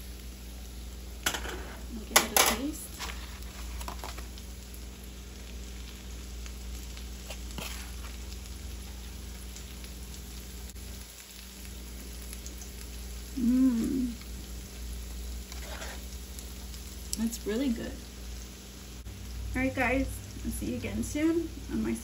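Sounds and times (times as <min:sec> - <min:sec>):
food sizzling in a frying pan: 0:00.0 - 0:22.0
person humming: 0:13.3 - 0:14.2.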